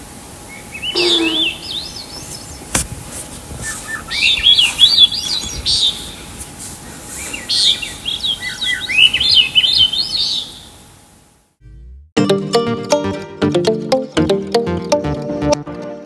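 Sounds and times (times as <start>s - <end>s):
songbird warbling: 0.5s - 2.8s, 3.6s - 6.2s, 7.2s - 10.7s.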